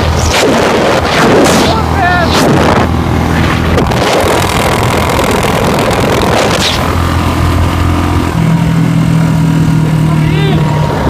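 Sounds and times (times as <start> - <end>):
sharp cracks: 0.0 - 2.8, 3.4 - 7.2
motorcycle engine running: 0.0 - 11.0.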